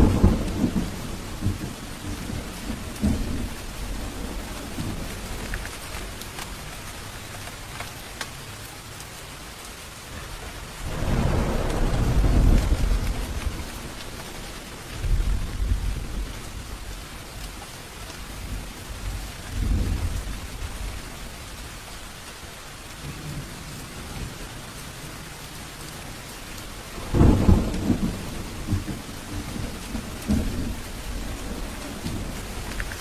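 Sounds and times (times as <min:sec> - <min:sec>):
thunder rumbling: 0:00.0 - 0:07.3, 0:10.2 - 0:22.3, 0:26.4 - 0:33.0
heavy rain hissing: 0:00.0 - 0:33.0.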